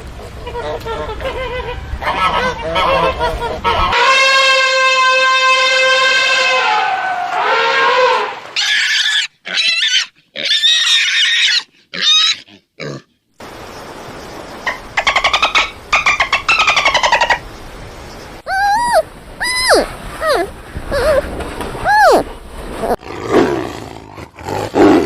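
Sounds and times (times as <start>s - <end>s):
pig squealing: 8.6s - 13.0s, 18.5s - 22.3s
animal call with stuttering pulses: 18.5s - 23.0s.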